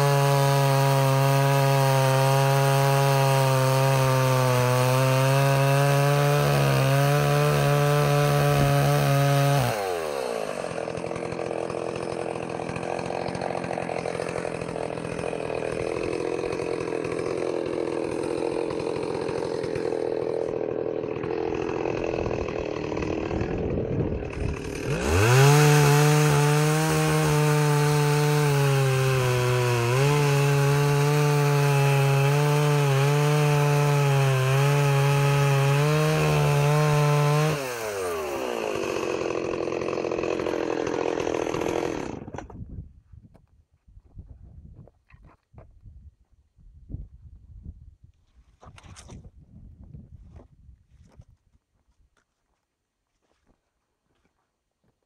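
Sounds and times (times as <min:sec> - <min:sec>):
chainsaw revving and idling: 0:00.0 - 0:42.6.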